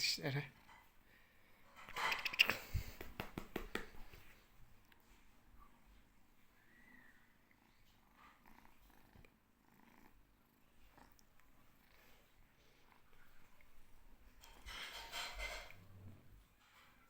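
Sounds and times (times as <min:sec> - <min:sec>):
cat purring: 0:01.9 - 0:17.0.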